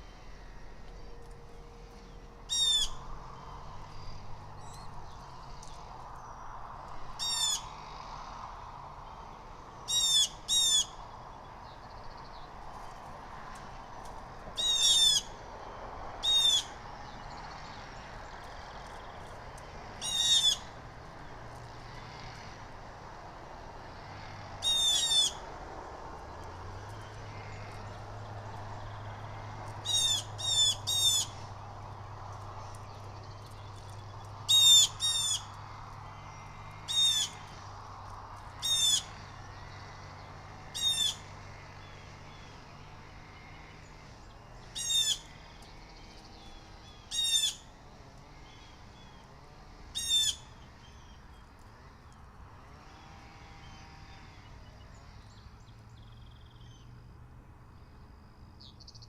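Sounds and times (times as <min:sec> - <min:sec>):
blue jays calling: 0:01.9 - 0:05.9, 0:09.8 - 0:11.0, 0:14.5 - 0:15.4, 0:16.2 - 0:19.3, 0:19.9 - 0:21.4, 0:24.6 - 0:25.6, 0:26.2 - 0:37.7, 0:38.4 - 0:42.6, 0:44.6 - 0:47.7, 0:50.0 - 0:51.2.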